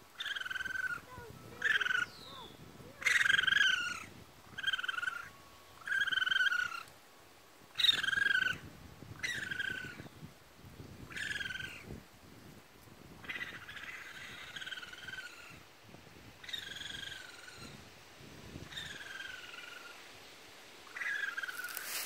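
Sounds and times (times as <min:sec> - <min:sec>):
baby raccoons crying: 0:00.2 - 0:06.9.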